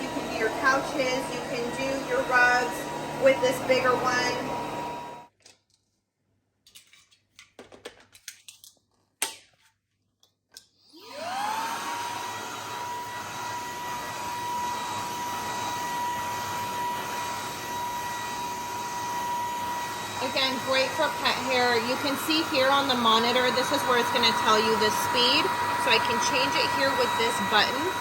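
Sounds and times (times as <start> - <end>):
stick vacuum motor whining: 0.0 - 5.3, 10.9 - 28.0.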